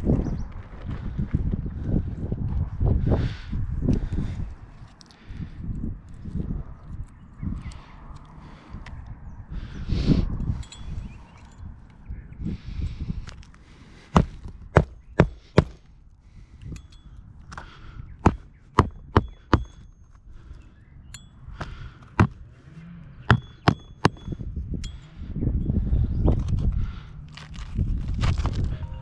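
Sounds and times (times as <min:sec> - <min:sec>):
hammer striking roofing nails: 0:14.1 - 0:15.8, 0:18.2 - 0:19.8, 0:21.6 - 0:22.4, 0:23.3 - 0:24.4.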